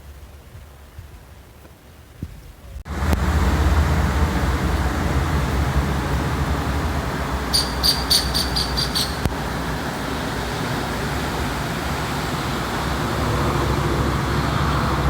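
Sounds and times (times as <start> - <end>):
motorcycle engine rumble: 0.0 - 15.0
wind and road noise: 0.0 - 15.0
high chirps: 7.5 - 9.3.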